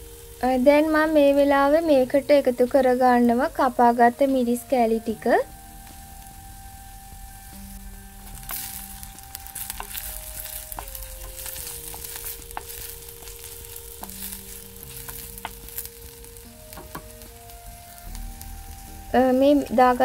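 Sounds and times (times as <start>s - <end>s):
onions sizzling in oil: 0.0s - 20.0s
wooden spoon scraping a pot: 8.2s - 16.2s.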